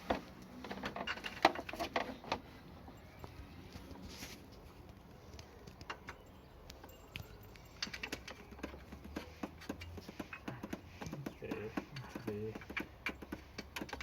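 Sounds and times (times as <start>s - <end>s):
tools and bolts tapping metal: 0.0s - 2.5s, 5.6s - 14.0s.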